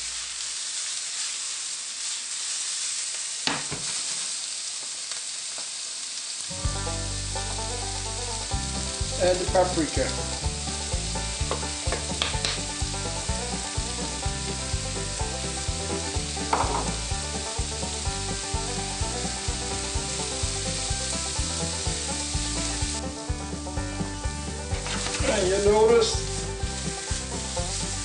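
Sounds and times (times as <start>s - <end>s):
vegetables sizzling in a pan: 0.0s - 28.0s
wooden spatula scraping pan: 24.7s - 25.7s.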